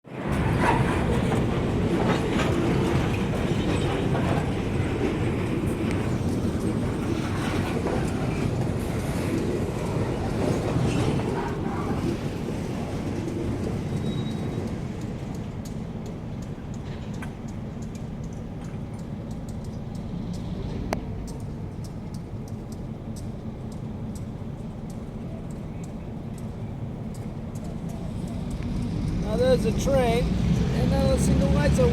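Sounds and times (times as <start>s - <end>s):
train rumbling past: 0.0s - 31.9s
wheels clacking over rail joints: 0.1s - 31.9s.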